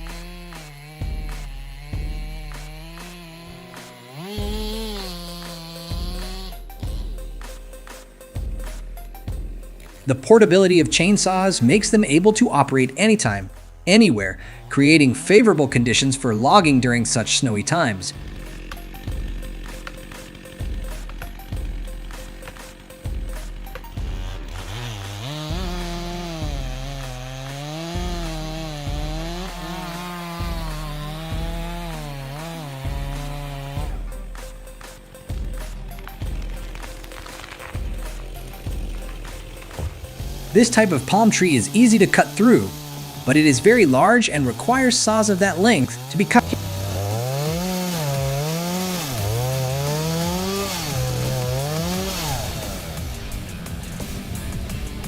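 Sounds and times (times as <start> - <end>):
chainsaw cutting log: 0.0 - 55.0
regular thump: 35.3 - 41.3.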